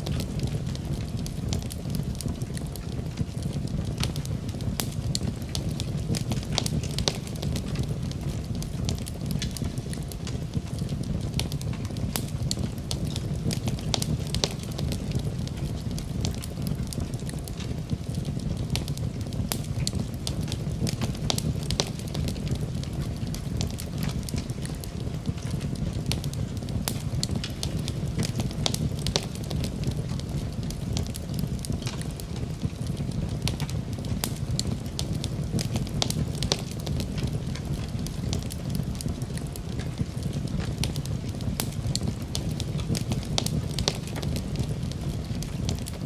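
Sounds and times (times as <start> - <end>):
fire popping and snapping: 0.0 - 46.0
low rumble of burning: 0.0 - 46.0
wood fire crackling: 0.0 - 46.0.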